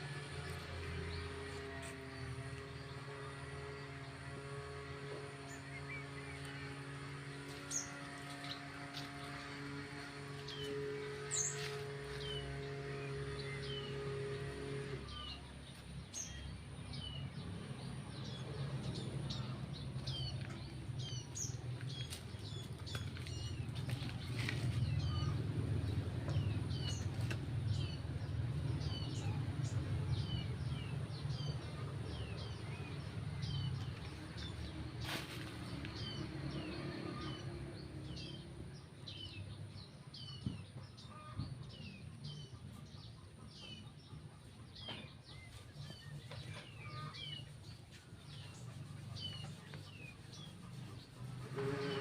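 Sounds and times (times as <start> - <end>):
low steady rumble: 0.0 - 39.9
small birds chirping: 3.8 - 52.0.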